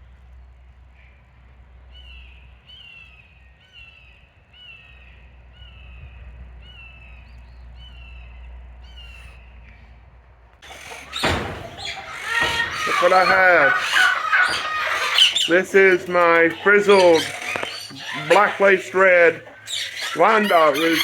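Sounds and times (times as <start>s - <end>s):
bird calling falling note: 10.6s - 21.0s.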